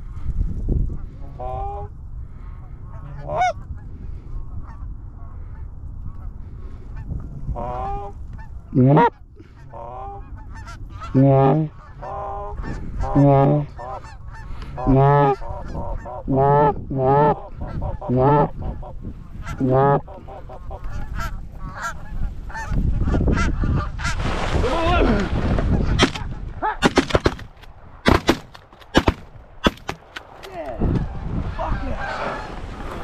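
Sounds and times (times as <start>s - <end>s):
geese honking: 2.8s - 3.8s, 7.0s - 24.2s.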